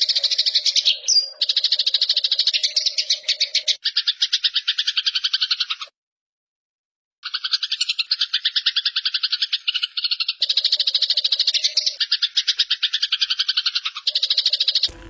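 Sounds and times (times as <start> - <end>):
sparrow chattering: 0.0 - 5.9.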